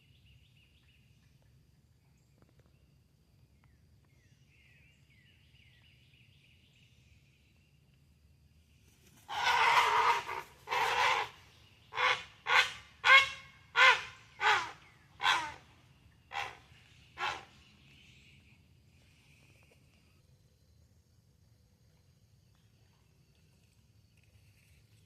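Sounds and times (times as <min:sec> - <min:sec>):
bird harsh cries: 0:09.3 - 0:15.7, 0:16.3 - 0:17.6.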